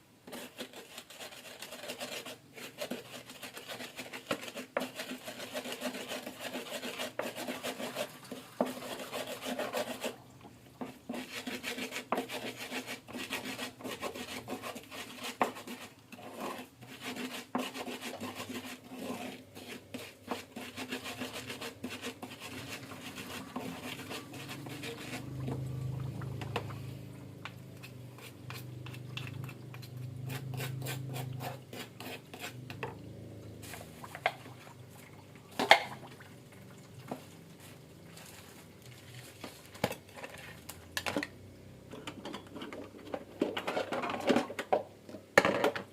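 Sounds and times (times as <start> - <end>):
scraping and rubbing strokes: 0.2 - 10.2, 10.8 - 27.0, 27.8 - 32.7, 33.6 - 34.7.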